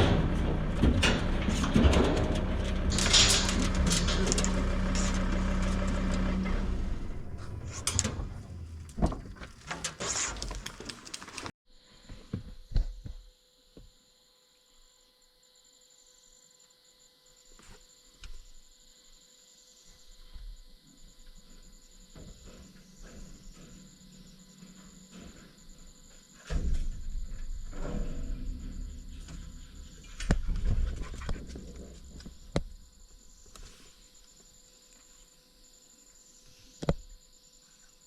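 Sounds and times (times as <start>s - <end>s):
vehicle engine hum: 0.0s - 9.8s
vehicle rattling over rough ground: 0.0s - 11.5s, 22.3s - 33.0s.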